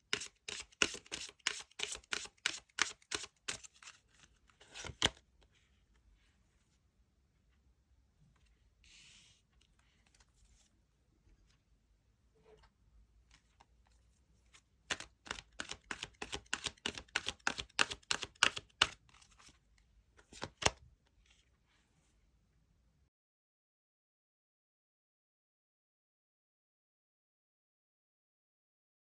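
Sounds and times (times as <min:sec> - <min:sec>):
cards rustling: 0:00.1 - 0:05.2, 0:14.5 - 0:19.6, 0:20.2 - 0:20.8.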